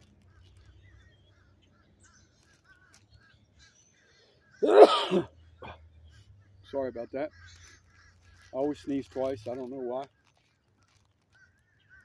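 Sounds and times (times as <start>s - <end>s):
distant crows cawing: 0.2s - 12.0s
man sneezing loudly: 4.6s - 5.3s.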